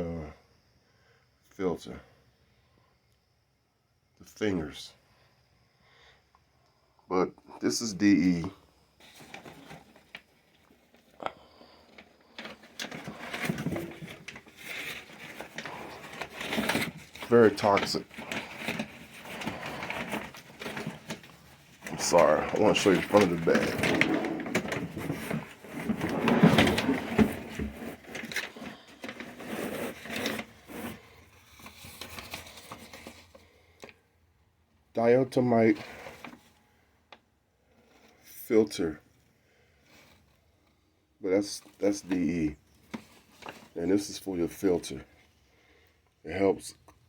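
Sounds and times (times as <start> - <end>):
bag rustling: 11.7 - 33.3.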